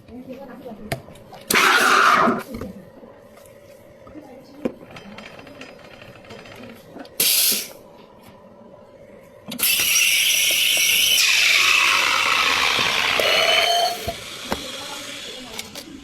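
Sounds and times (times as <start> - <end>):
steam wand hissing: 7.2 - 7.8.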